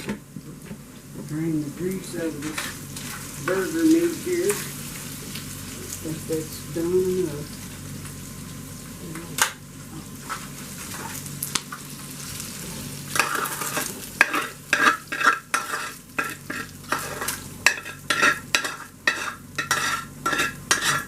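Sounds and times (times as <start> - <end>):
meat sizzling in a frying pan: 1.6 - 21.0
utensil scraping a pan: 12.4 - 21.0.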